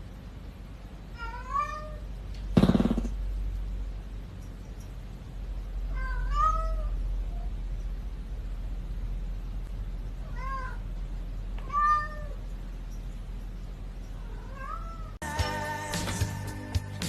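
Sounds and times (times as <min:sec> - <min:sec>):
cat meowing: 0:01.2 - 0:02.0, 0:05.9 - 0:07.0, 0:10.2 - 0:10.8, 0:11.6 - 0:12.4, 0:14.2 - 0:15.2
music: 0:15.2 - 0:17.0.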